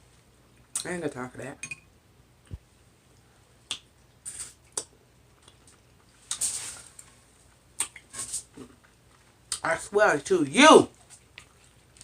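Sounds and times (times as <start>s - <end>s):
wet mouth clicks and smacks: 3.6s - 3.9s, 4.7s - 6.4s, 7.8s - 8.1s.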